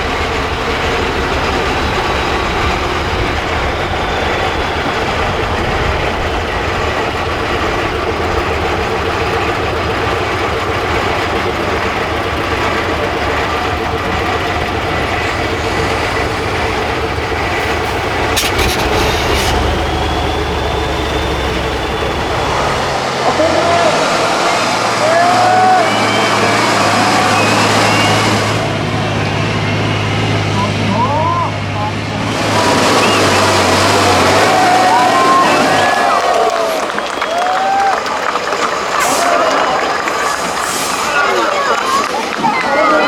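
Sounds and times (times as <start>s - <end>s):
truck diesel engine rumble: 0.0s - 43.0s.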